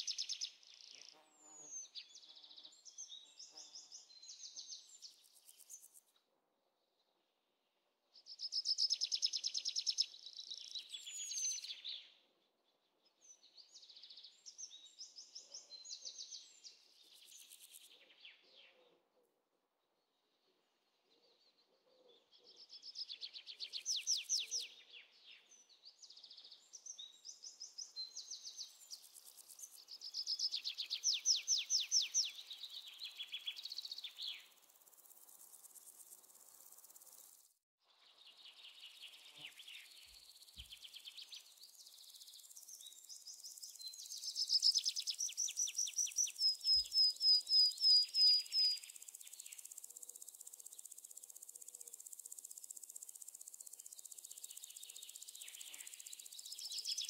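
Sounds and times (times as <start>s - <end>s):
songbird trilling chirps: 0.0s - 6.0s, 8.2s - 12.2s, 21.4s - 34.6s, 38.0s - 57.0s.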